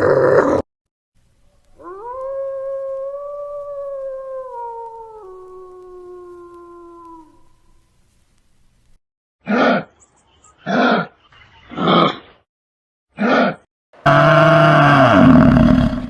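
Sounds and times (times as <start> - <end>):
wolf howling: 1.8 - 7.6.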